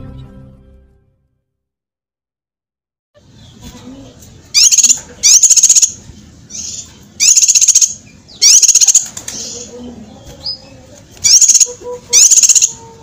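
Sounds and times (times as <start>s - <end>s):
faint bird chirps: 3.2s - 12.8s
songbird singing: 3.2s - 13.0s.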